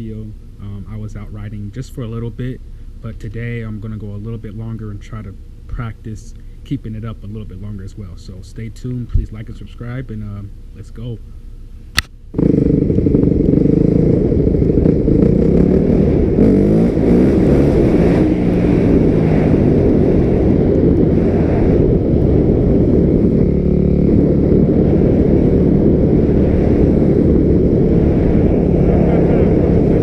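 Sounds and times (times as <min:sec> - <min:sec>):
dirt bike engine revving: 0:12.3 - 0:30.0.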